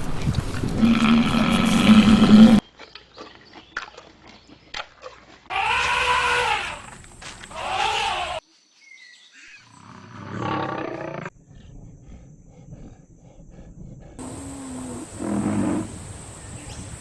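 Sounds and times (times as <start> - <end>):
harsh growling animal call: 0.0 - 2.6, 5.5 - 8.4, 14.2 - 17.0.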